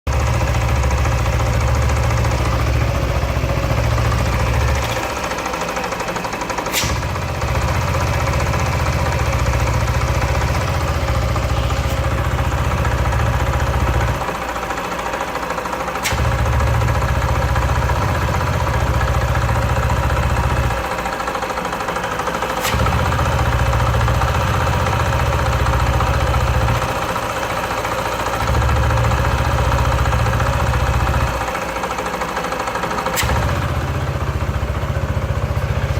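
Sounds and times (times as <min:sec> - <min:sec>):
scooter engine idling: 0:00.1 - 0:35.9.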